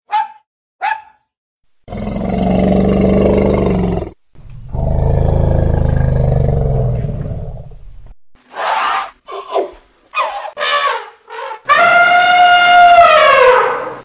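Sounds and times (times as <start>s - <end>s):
elephant roaring: 1.9s - 7.7s.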